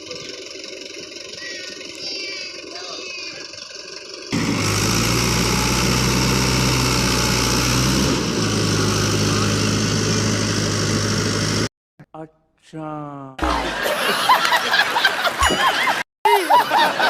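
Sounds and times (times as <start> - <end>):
tractor engine running: 0.0 - 11.7.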